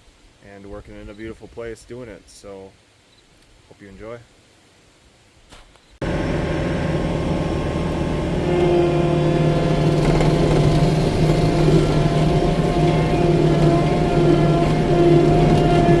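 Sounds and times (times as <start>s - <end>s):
track loader engine running: 6.0s - 16.0s.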